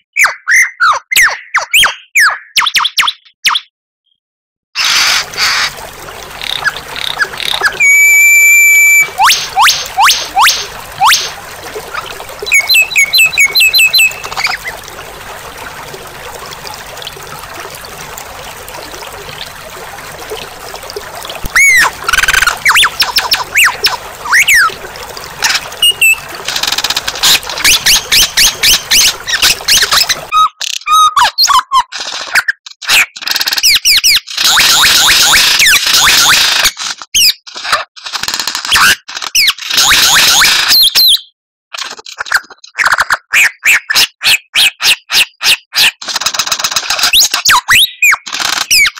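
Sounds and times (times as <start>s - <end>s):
songbird singing: 12.4s - 14.8s.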